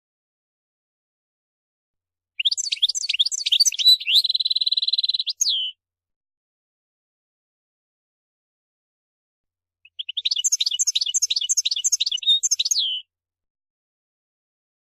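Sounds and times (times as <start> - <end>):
goldfinch singing: 2.4 - 5.8, 9.8 - 13.0.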